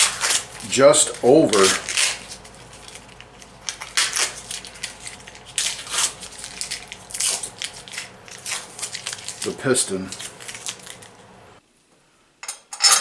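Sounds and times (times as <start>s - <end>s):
metal clinks and knocks: 12.4s - 13.0s.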